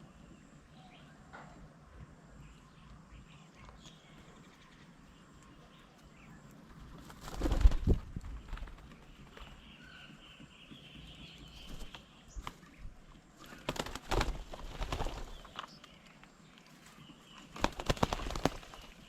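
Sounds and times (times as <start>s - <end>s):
bird wings flapping: 6.9s - 9.8s, 11.5s - 15.9s, 17.3s - 19.0s.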